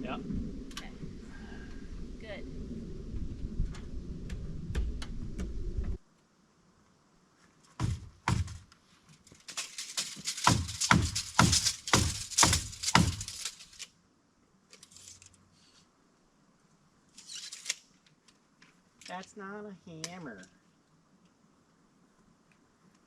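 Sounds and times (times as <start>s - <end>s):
hammer driving nails into wood: 7.8s - 8.7s, 10.0s - 13.7s.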